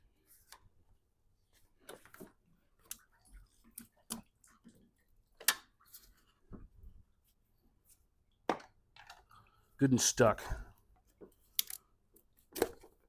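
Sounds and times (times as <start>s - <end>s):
clicks and knocks of parts pried: 11.5s - 11.9s.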